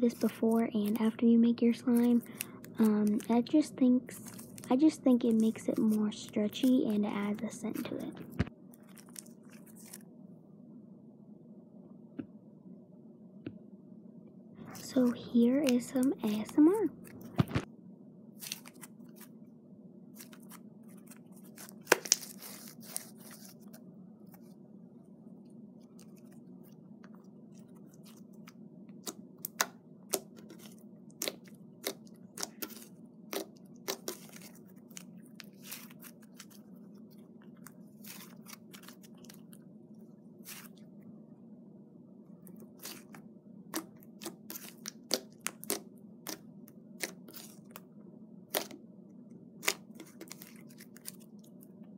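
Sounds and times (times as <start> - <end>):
low background hum: 0.0 - 51.9
slime squished by hand: 27.6 - 36.6, 42.6 - 46.4, 48.5 - 48.8, 49.6 - 51.5.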